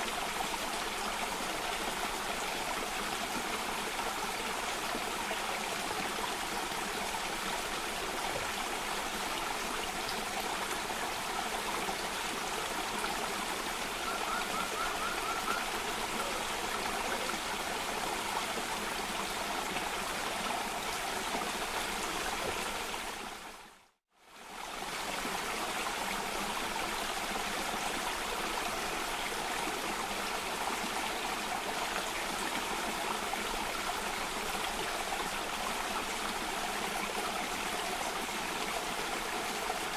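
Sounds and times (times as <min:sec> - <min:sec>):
water rushing down a stream: 0:00.0 - 0:39.9.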